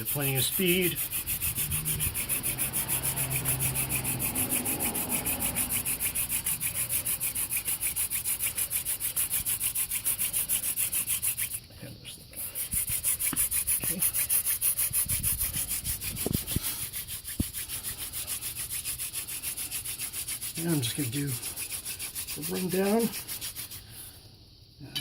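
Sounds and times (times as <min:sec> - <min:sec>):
wooden spindle grinding in hearthboard: 0:00.0 - 0:11.7, 0:12.4 - 0:24.1.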